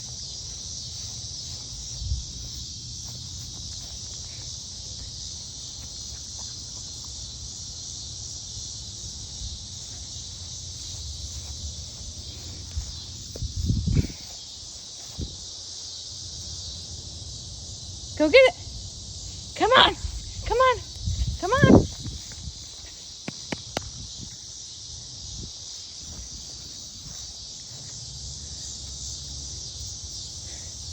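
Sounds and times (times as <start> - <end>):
insect chorus trilling: 0.0 - 30.9
low wind-like rumble: 12.0 - 14.3, 20.0 - 22.8.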